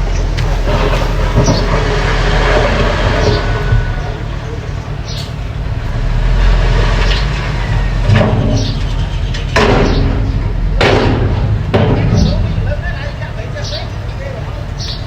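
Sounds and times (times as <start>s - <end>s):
metal knocks and clanks: 0.0s - 14.2s
bulldozer engine running: 0.0s - 15.0s.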